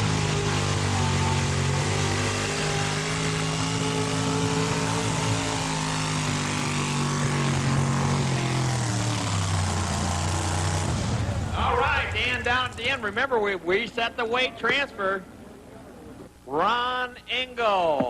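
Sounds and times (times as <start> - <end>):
truck engine at high revs: 0.0 - 13.2.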